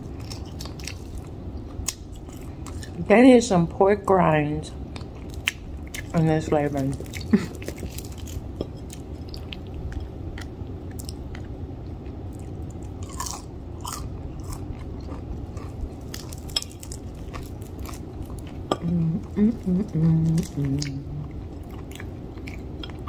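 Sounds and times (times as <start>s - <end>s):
crunching fried chicken: 0.0s - 3.0s, 5.0s - 18.8s.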